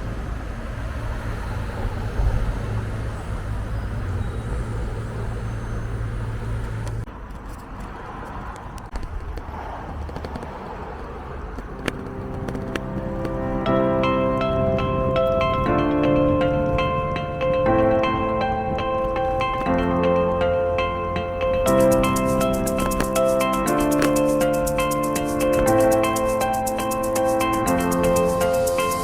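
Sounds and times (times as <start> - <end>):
vehicle rumble: 0.0 - 29.0
scattered clicks: 6.8 - 29.0
music: 11.8 - 29.0.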